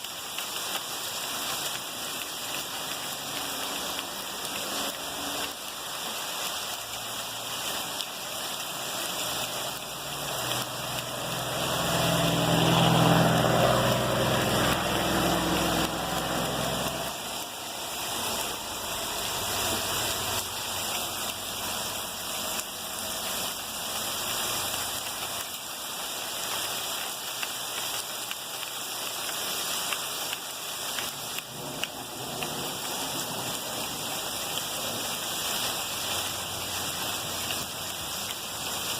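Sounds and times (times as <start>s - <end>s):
heavy rain: 0.0s - 38.9s
engine passing: 9.0s - 22.8s.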